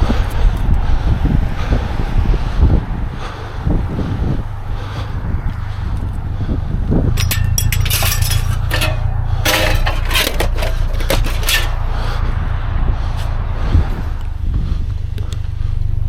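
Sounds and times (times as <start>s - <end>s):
vehicle engine running: 0.0s - 16.0s
metal clinks and clatters: 7.2s - 11.9s.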